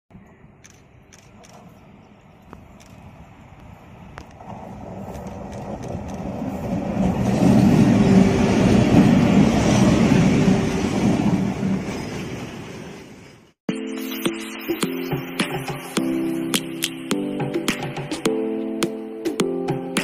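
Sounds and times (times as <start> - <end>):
train rumbling past: 0.2 - 13.6.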